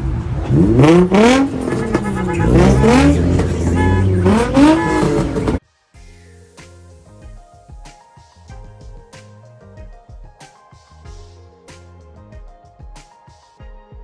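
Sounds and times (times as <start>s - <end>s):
car engine revving: 0.0s - 5.6s.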